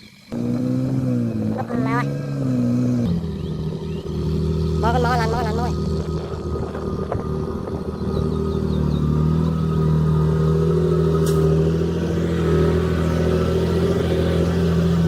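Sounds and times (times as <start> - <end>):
heavy diesel engine running: 0.3 - 15.0
sharp click: 11.2 - 11.4.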